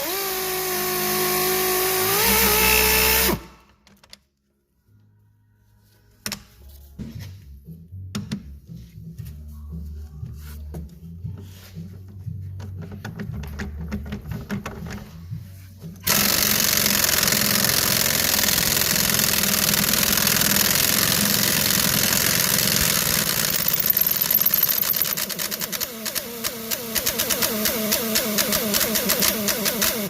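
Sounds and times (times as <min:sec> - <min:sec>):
pneumatic impact wrench: 0:00.0 - 0:03.6, 0:16.0 - 0:30.0
background music: 0:04.3 - 0:19.4.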